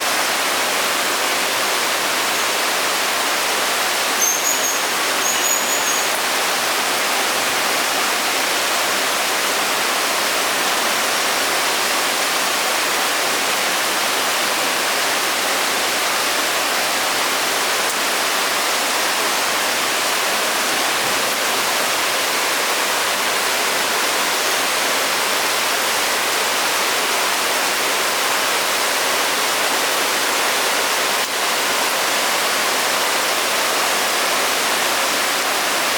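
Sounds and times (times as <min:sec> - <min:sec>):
steady rain hiss: 0:00.0 - 0:35.9
high-pitched chirps: 0:04.2 - 0:06.2.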